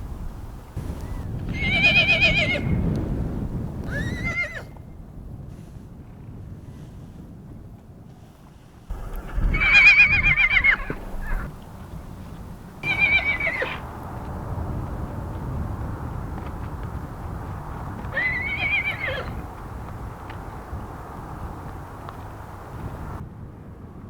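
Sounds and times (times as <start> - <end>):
horse whinnying: 1.5 - 2.8, 3.9 - 4.7, 8.9 - 12.2, 12.8 - 13.9, 18.1 - 19.4.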